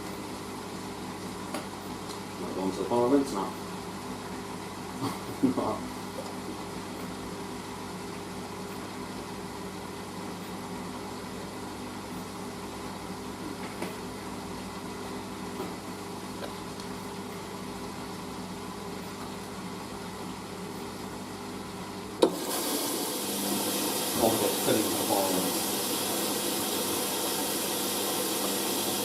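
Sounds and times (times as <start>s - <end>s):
washing machine humming: 0.0s - 29.0s
water filling hiss: 22.2s - 29.0s.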